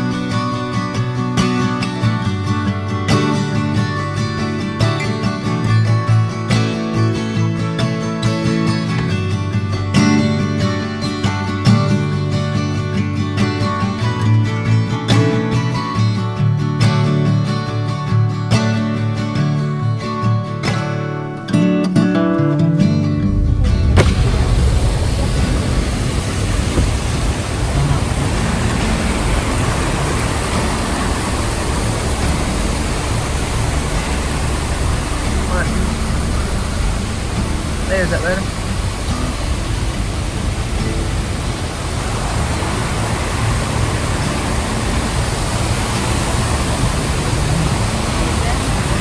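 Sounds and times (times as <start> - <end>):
car road noise rumble: 23.2 - 49.0
even hiss: 23.2 - 49.0
fast mountain stream rushing: 23.2 - 49.0.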